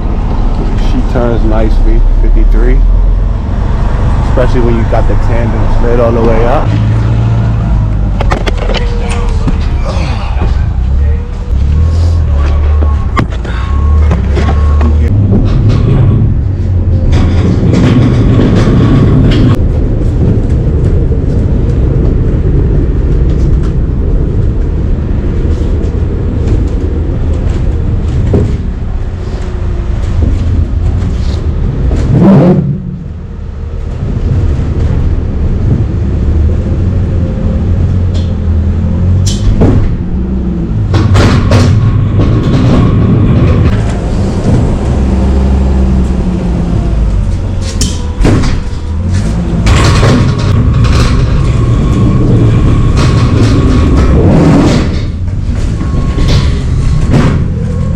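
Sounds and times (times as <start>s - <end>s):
diesel truck engine rumbling: 0.0s - 57.9s
sharp knocks and clunks: 12.3s - 19.6s, 39.2s - 45.3s, 47.6s - 52.1s, 52.7s - 57.9s.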